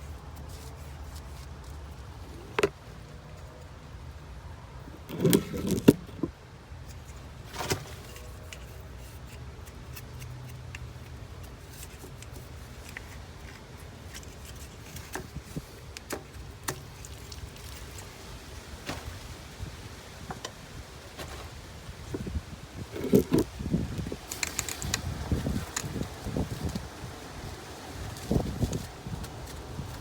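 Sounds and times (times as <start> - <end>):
knocking and scraping on plastic pipe: 5.0 - 6.4, 22.9 - 23.5.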